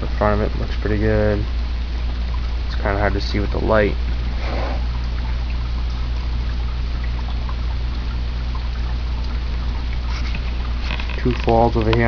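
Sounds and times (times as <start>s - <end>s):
low pump hum: 0.0s - 12.0s
water trickling down small waterfall: 0.0s - 12.0s.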